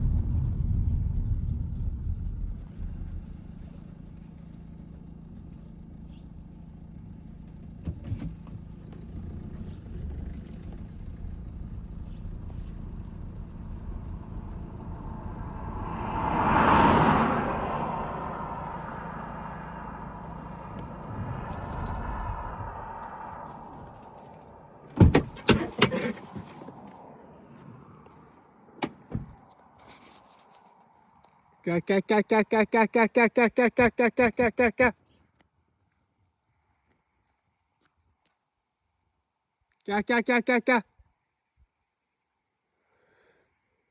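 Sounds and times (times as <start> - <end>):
vehicle engine rumbling: 0.0 - 35.2
vehicle passing close by: 9.0 - 31.3.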